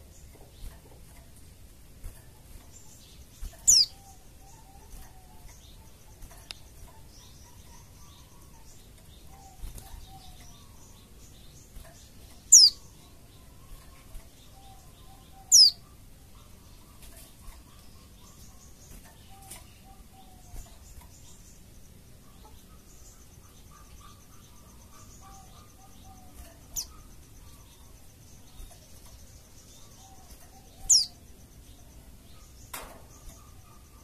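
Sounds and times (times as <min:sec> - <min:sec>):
faint scattered chirping: 0:00.0 - 0:34.0
high thin bird calls: 0:03.4 - 0:10.9, 0:11.8 - 0:21.4, 0:29.8 - 0:31.2.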